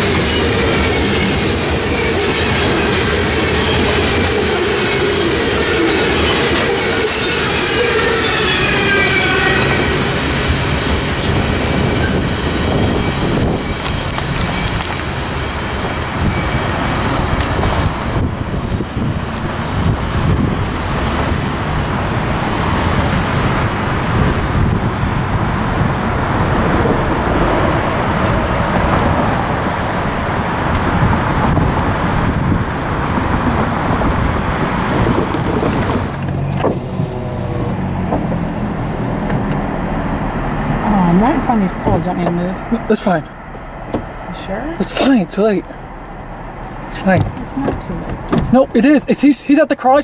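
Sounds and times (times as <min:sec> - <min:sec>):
train wheels rumbling on rail: 0:00.0 - 0:50.0
low engine hum: 0:17.0 - 0:48.8.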